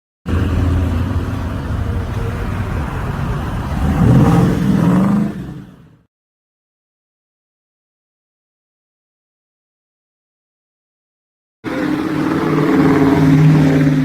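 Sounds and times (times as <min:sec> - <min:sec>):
car engine running: 0:00.3 - 0:05.9.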